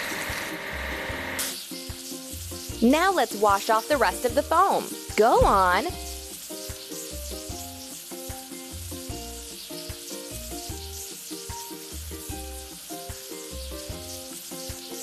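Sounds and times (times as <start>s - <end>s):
hissing water spray: 0.0s - 15.0s
looping game tune with bass: 2.8s - 6.0s.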